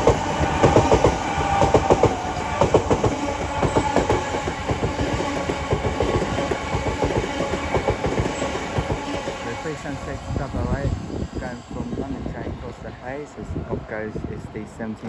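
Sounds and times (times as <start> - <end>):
train wheels clattering over rail joints: 0.0 - 9.5.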